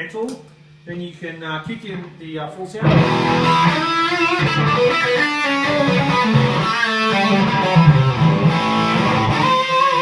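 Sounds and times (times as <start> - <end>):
distorted electric guitar riff: 2.8 - 10.0.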